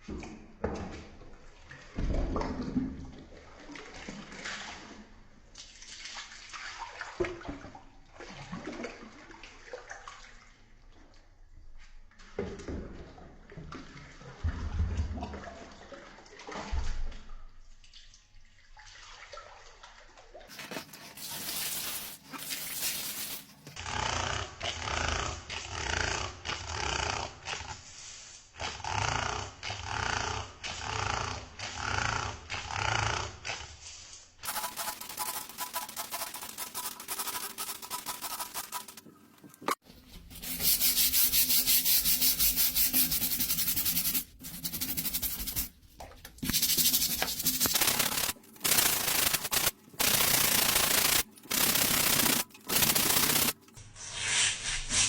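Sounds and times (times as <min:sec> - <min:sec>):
scrubbing: 0:20.5 - 0:23.8, 0:34.4 - 0:54.5.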